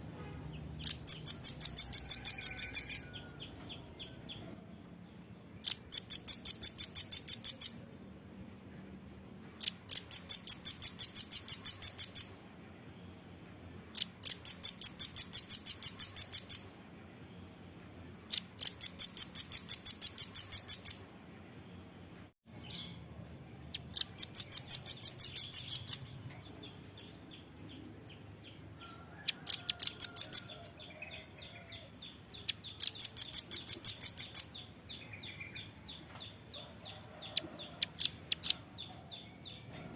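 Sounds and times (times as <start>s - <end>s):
nuthatch calling: 0.8s - 3.2s, 5.6s - 7.8s, 9.6s - 12.4s, 14.0s - 16.7s, 18.3s - 21.0s, 23.7s - 26.1s, 29.2s - 31.8s, 32.4s - 35.7s.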